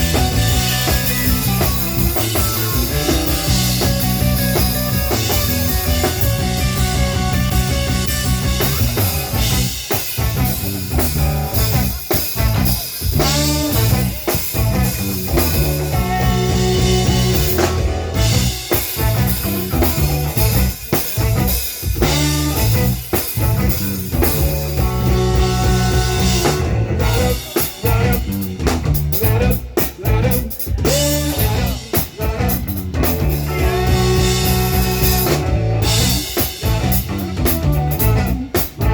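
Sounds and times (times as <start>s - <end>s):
pitch-bending melodic line: 0.0s - 9.8s, 13.2s - 20.6s
live rock band playing: 0.0s - 38.9s.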